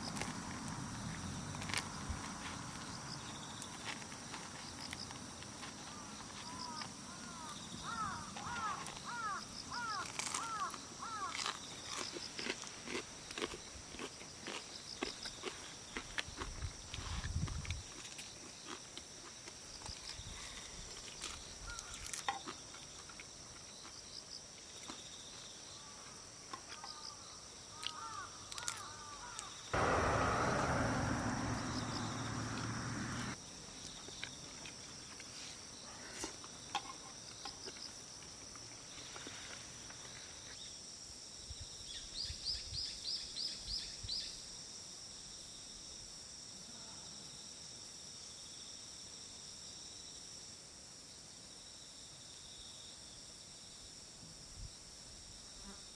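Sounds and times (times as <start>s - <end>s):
insects trilling: 0.0s - 50.4s
loud rushing noise: 29.8s - 33.4s.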